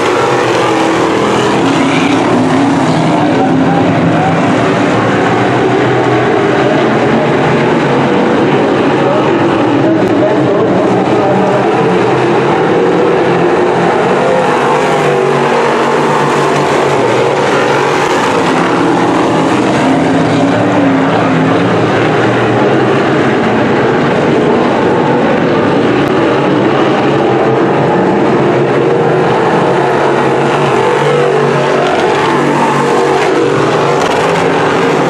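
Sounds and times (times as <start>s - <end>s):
race car engines revving: 0.0s - 35.0s.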